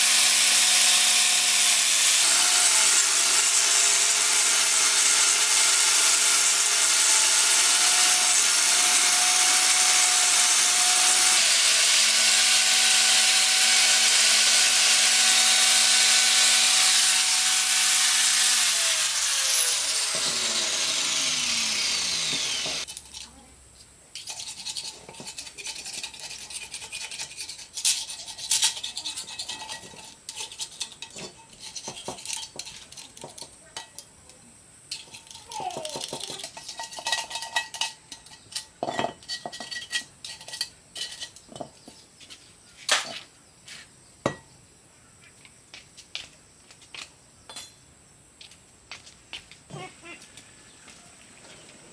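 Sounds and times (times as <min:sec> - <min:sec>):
angle grinder on metal: 0:00.0 - 0:22.9.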